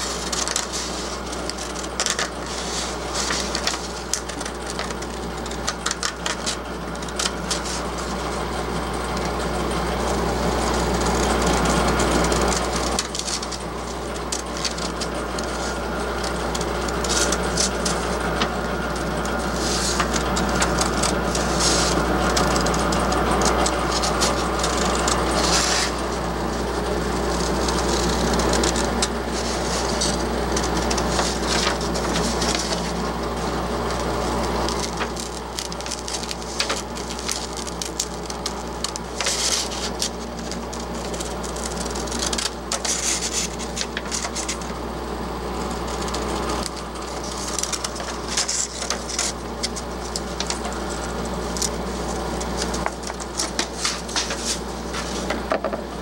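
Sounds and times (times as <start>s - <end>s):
scroll saw motor hum: 0.0s - 56.0s
saw blade rasping through plywood: 17.0s - 26.5s.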